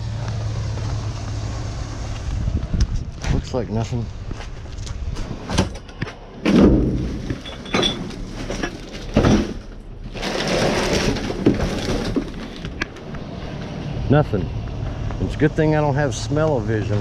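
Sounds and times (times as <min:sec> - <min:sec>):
trash rustling and scraping: 0:04.3 - 0:13.8
knocks and thuds in dumpster: 0:05.4 - 0:12.9.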